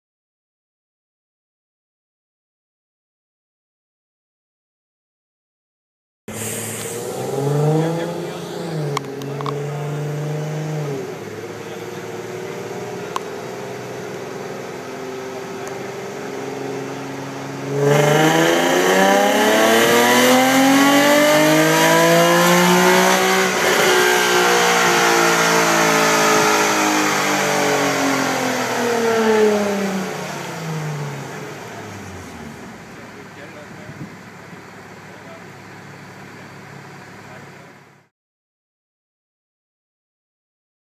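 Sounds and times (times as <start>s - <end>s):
car engine revving on dyno: 6.3s - 35.4s.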